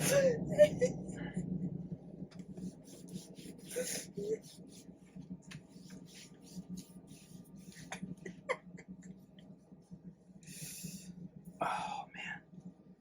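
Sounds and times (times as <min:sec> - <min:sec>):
low hum: 0:00.0 - 0:13.0
breath: 0:10.4 - 0:12.1.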